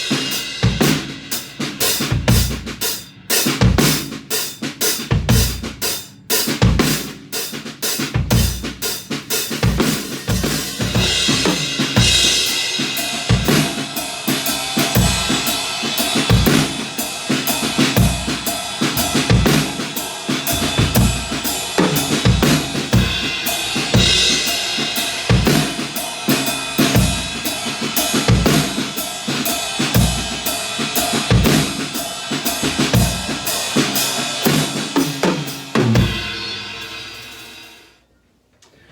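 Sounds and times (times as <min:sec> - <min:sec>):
loud cymbal hits: 0:00.0 - 0:02.0, 0:10.2 - 0:37.9
drum kit playing a groove: 0:00.0 - 0:37.8.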